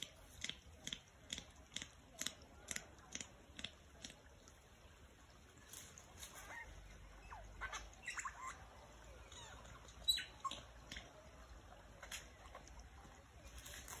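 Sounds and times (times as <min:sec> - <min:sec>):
bird chirps and squawks: 0:06.3 - 0:10.7.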